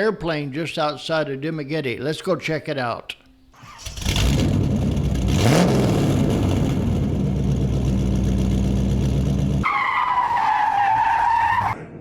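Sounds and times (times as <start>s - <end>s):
vehicle engine idling: 3.8s - 9.6s.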